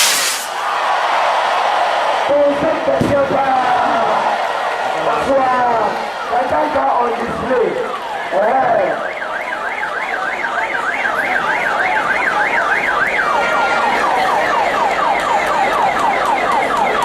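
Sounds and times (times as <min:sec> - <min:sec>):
electronic vehicle siren yelping: 0:07.8 - 0:17.0.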